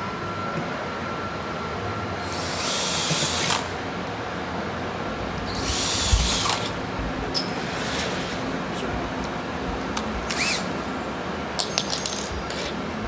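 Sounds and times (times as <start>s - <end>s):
cordless drill boring steel: 2.2s - 3.7s, 5.5s - 6.8s, 10.3s - 10.7s.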